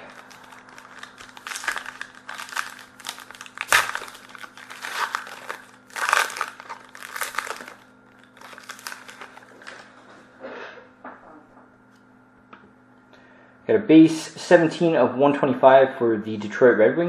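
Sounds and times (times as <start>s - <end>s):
wrapper tearing and crinkling: 0.0s - 9.9s.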